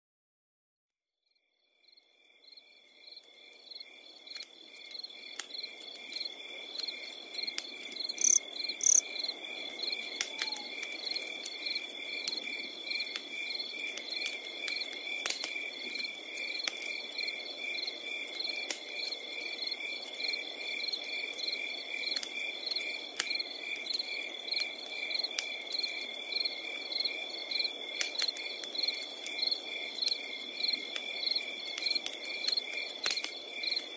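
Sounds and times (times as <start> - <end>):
crickets chirping: 1.4 - 33.9
campfire crackling and popping: 2.2 - 33.9.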